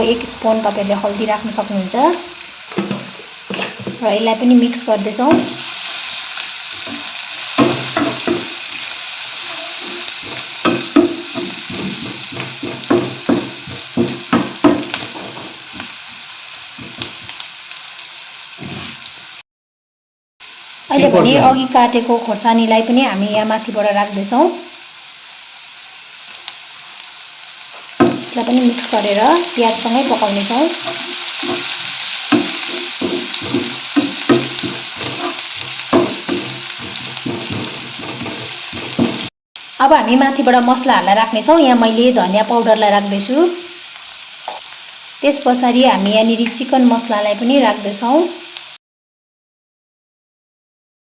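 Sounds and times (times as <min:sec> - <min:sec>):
onions sizzling in oil: 0:00.0 - 0:19.4, 0:20.4 - 0:48.8
spoon scraping a pan: 0:06.7 - 0:15.9, 0:27.8 - 0:39.3.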